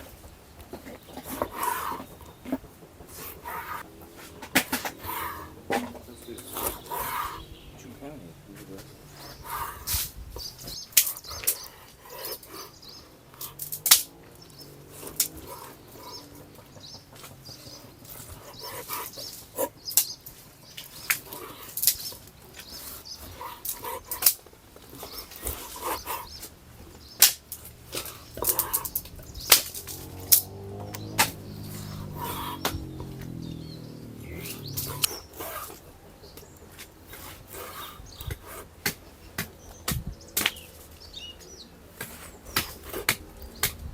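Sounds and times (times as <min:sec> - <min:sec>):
faint bird chirps: 0:27.9 - 0:38.5.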